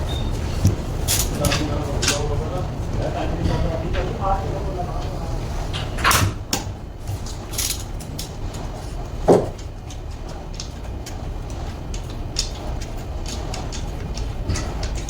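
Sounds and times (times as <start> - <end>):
sharp knocks and clicks: 5.7 - 15.0.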